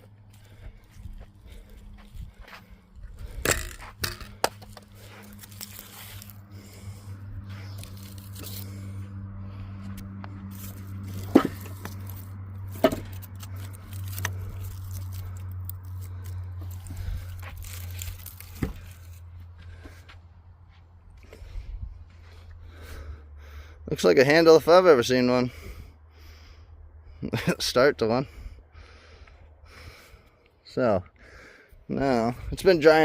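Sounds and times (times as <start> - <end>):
steady low hum: 0.0 - 23.9
scraping and handling noises: 1.0 - 9.1, 10.0 - 19.3.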